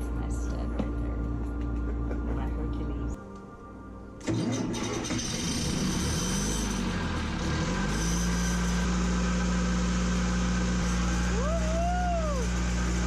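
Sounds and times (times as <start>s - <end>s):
boat engine starting and idling: 4.2s - 11.7s.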